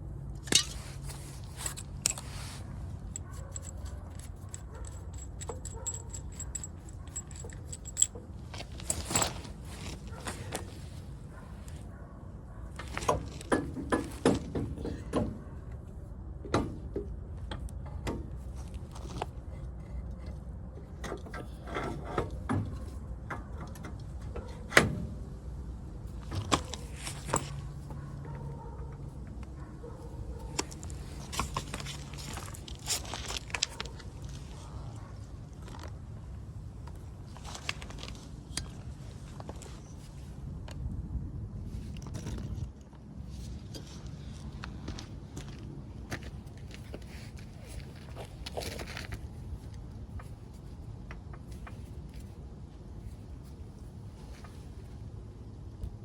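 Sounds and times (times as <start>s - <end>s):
metal tools clinking and scraping: 0.4s - 10.7s, 26.3s - 28.1s.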